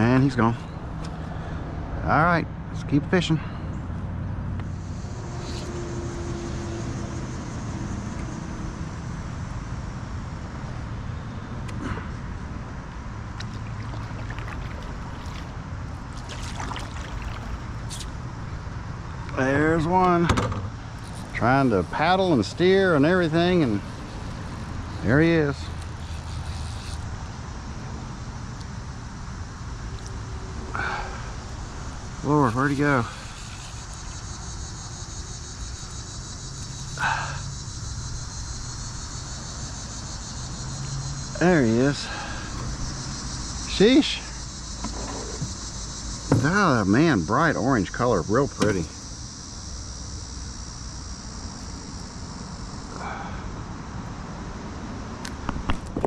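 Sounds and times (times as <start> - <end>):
insects trilling: 4.6 - 56.0
paddle splashing in water: 13.3 - 18.0
water dripping: 13.3 - 18.0.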